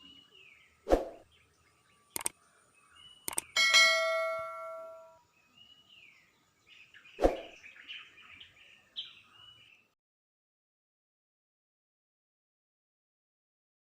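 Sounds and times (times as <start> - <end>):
faint bird chirps: 0.0 - 10.0
metallic clang ringing: 3.6 - 5.1.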